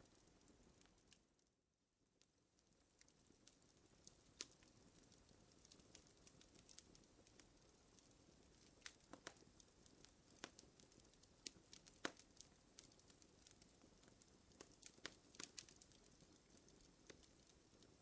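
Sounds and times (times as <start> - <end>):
faint hiss: 0.0 - 1.4
wood fire crackling: 0.0 - 18.0.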